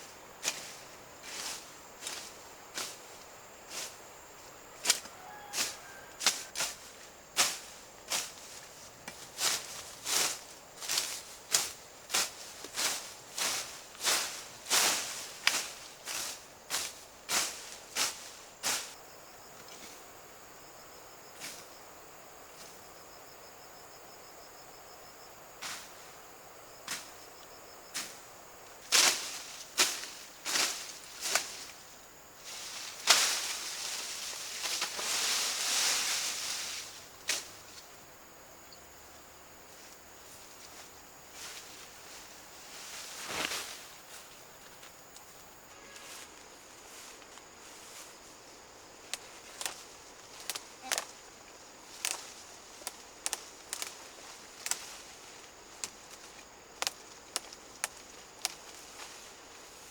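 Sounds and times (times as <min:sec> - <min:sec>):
high insect drone: 0:00.0 - 0:59.9
rapidly pulsing insect chirp: 0:00.0 - 0:59.9
rustling: 0:39.8 - 0:48.3.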